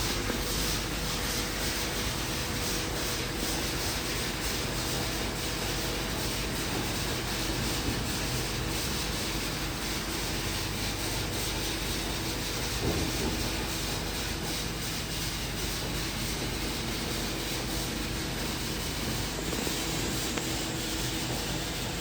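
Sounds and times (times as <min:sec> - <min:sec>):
car wash machinery rushing: 0:00.0 - 0:22.0.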